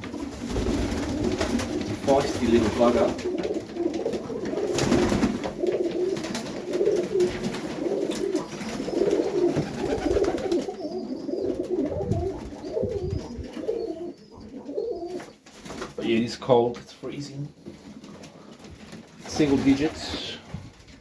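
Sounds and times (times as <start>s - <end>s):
pigeons cooing: 0.0s - 15.9s
small knocks and rustles: 17.6s - 19.2s.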